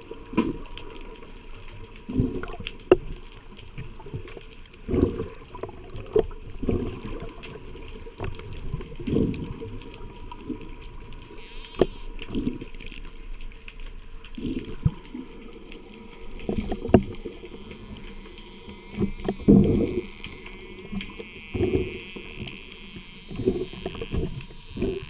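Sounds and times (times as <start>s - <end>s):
water sloshing and bubbling: 0.0s - 25.0s
sharp clicks: 11.4s - 12.3s, 15.8s - 25.0s.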